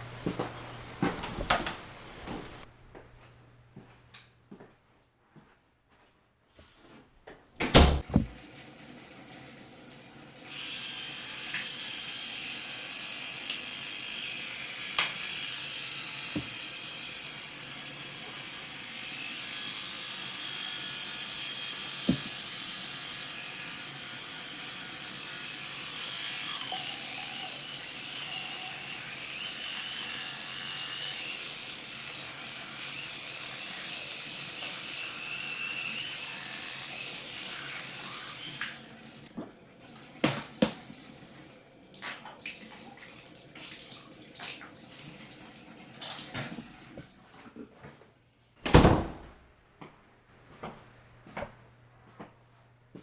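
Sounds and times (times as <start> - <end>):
water running from a tap: 8.1 - 47.0.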